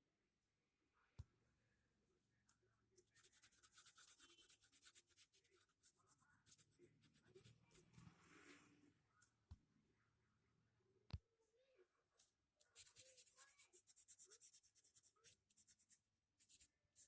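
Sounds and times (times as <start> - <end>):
scratchy drawing strokes: 3.0 - 8.8, 12.6 - 17.0.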